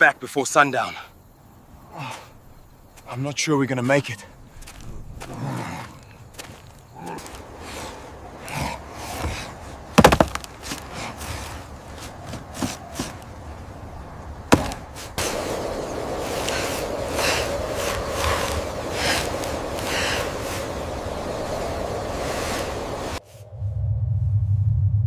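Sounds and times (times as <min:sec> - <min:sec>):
steady rushing noise: 0:13.3 - 0:25.0.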